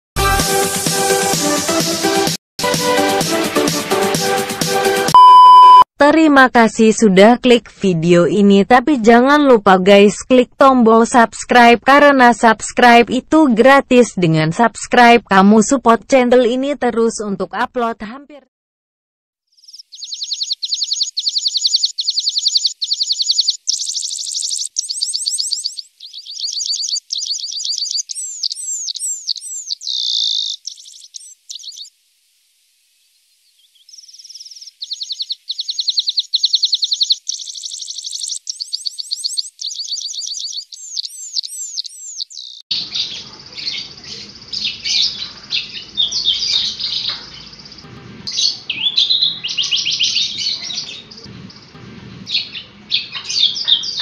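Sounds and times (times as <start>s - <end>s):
bird chirping: 19.5s - 31.9s, 33.1s - 54.0s
bush lark singing trills: 19.6s - 31.9s, 33.5s - 47.8s.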